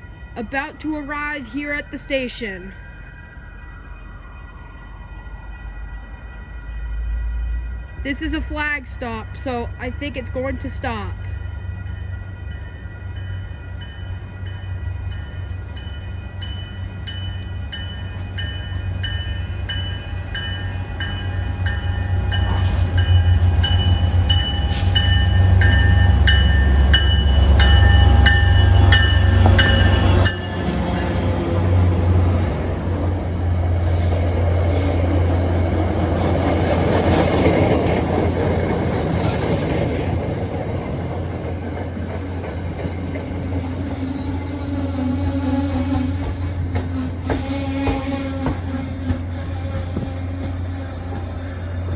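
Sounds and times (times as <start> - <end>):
diesel train engine rumble: 0.0 - 51.9
train wheels rolling: 2.4 - 51.9
bell ringing: 8.0 - 31.6.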